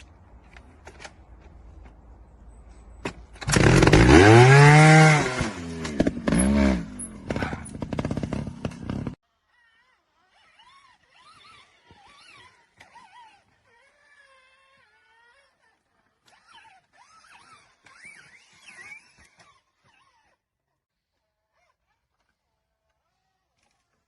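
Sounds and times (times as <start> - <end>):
motorcycle engine revving: 3.3 - 9.2.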